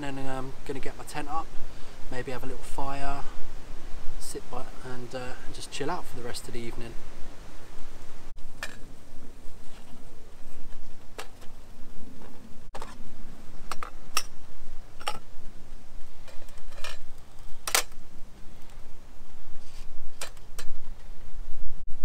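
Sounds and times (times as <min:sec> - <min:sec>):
camp cookware clinking: 0:08.6 - 0:08.9, 0:13.6 - 0:15.3, 0:16.2 - 0:18.0.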